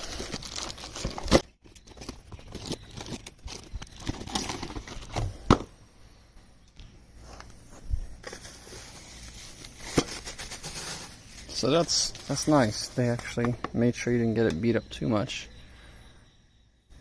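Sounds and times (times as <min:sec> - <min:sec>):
packaging rustling and scraping: 0:00.0 - 0:05.6, 0:07.2 - 0:13.4.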